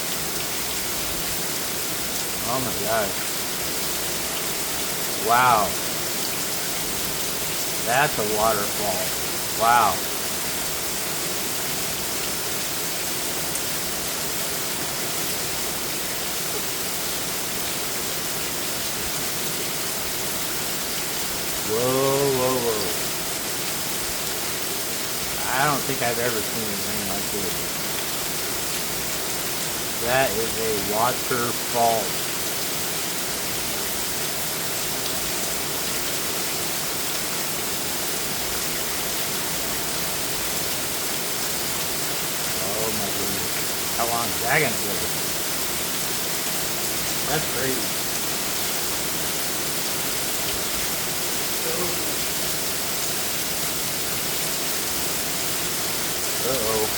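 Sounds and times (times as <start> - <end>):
heavy rain pouring: 0.0 - 56.9
water cascading off roof: 0.0 - 56.9.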